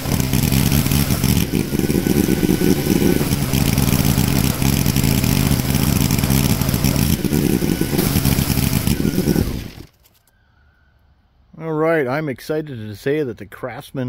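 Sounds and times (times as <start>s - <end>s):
garden tractor engine running: 0.0s - 10.0s.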